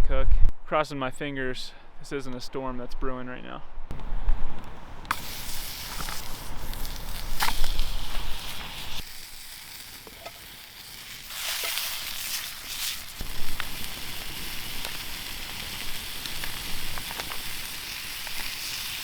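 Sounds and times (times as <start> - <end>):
fire pops: 3.9 - 19.0
sausages sizzling in a pan: 3.9 - 19.0.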